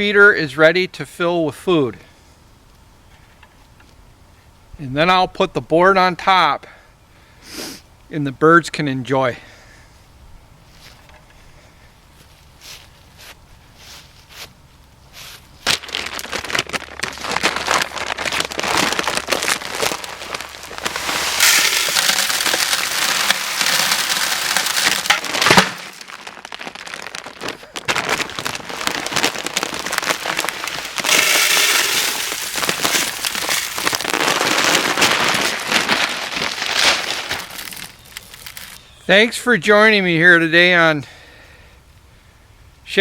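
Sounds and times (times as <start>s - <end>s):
bird seed pouring into a pail: 19.1s - 38.8s.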